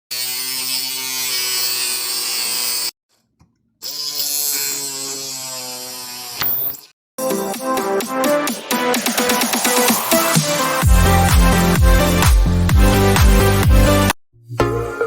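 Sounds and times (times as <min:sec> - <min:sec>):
mini drill motor whining: 0:03.8 - 0:06.9.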